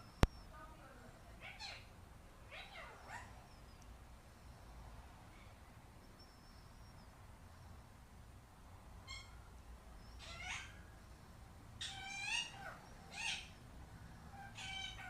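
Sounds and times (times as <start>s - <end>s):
parakeet calls: 1.2s - 1.9s, 2.5s - 7.8s, 9.0s - 9.4s, 10.0s - 15.0s.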